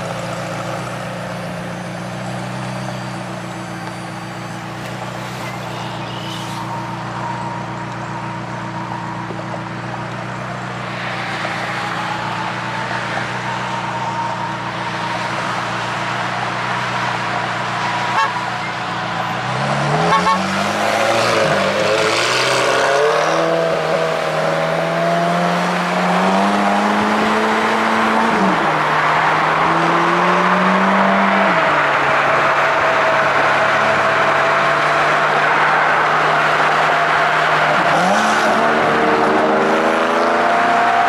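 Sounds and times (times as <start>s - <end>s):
car engine accelerating: 0.0s - 41.0s
road and wind noise: 0.0s - 41.0s.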